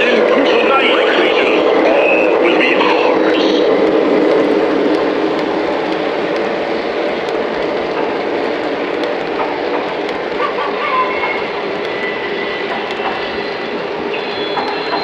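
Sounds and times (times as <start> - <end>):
model train rolling rumble: 0.0 - 15.0
faint clicks: 3.8 - 12.1, 12.7 - 13.4.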